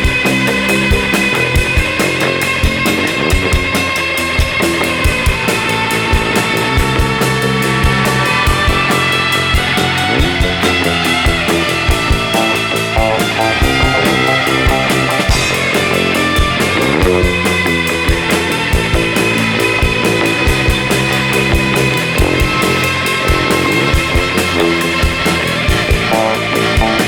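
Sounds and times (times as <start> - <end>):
bass guitar: 0.0 - 27.0
electric guitar: 0.0 - 27.0
kick drum and cymbals: 11.9 - 17.5.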